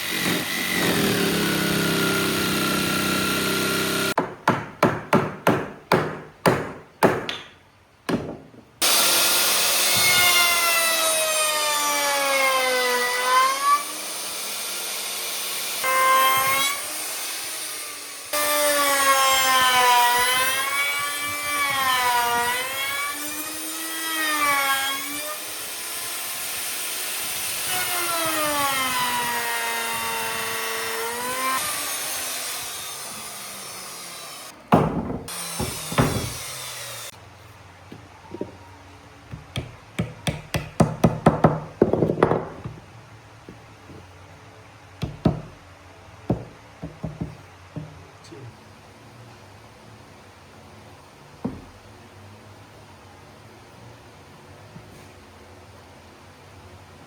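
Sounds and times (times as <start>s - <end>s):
power tool whine cutting wood: 0.0s - 4.2s, 8.8s - 34.5s, 35.3s - 37.1s
sharp knocks: 4.2s - 8.5s, 34.7s - 36.5s.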